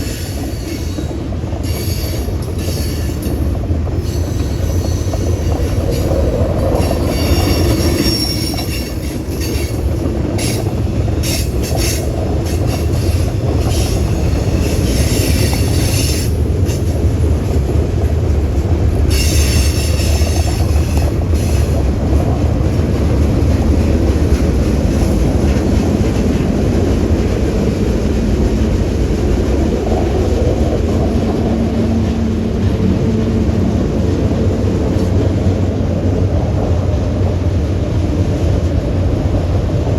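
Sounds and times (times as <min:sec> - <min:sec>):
train wheels squealing: 0:00.0 - 0:03.4, 0:04.0 - 0:17.0, 0:19.1 - 0:21.8
freight train rumbling: 0:00.0 - 0:39.9.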